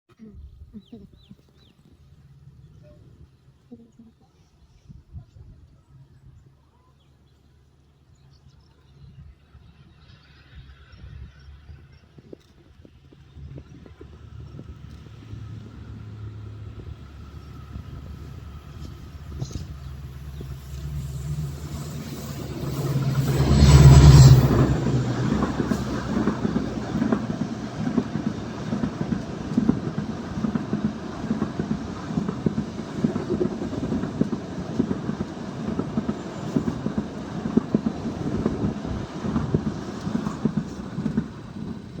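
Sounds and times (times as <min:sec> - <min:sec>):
diesel locomotive engine drone: 0:08.4 - 0:42.0
train wheels clacking on rails: 0:13.6 - 0:42.0.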